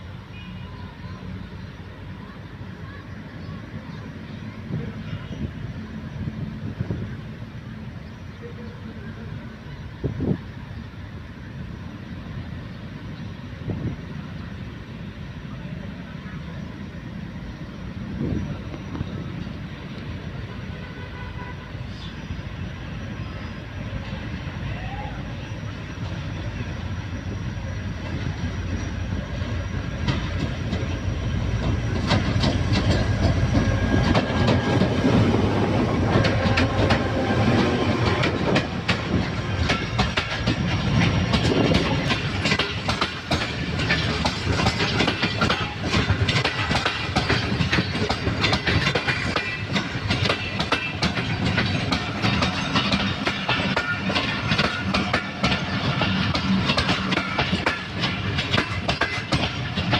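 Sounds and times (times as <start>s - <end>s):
heavy train rumble: 0.0s - 59.9s
train wheels clicking over rail joints: 27.8s - 59.9s.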